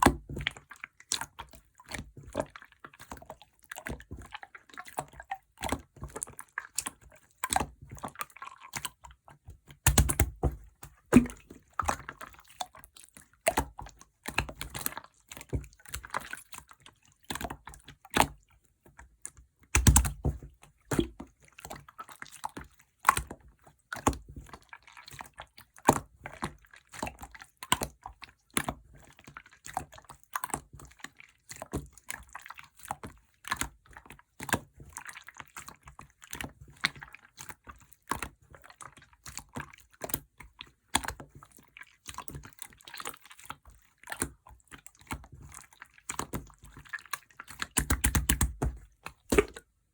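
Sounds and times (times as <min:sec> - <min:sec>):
slime squelches: 0:00.0 - 0:49.9
slime clicking and popping: 0:09.8 - 0:10.4, 0:19.8 - 0:20.2, 0:47.7 - 0:49.6.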